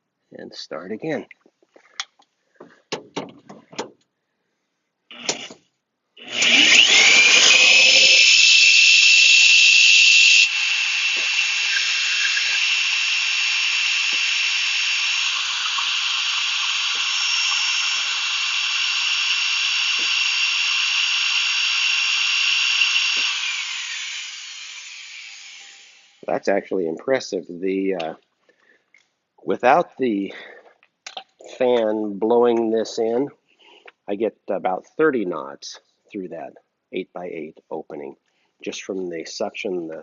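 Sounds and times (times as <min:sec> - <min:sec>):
electric drill whining: 0:05.1 - 0:05.6, 0:06.2 - 0:26.3.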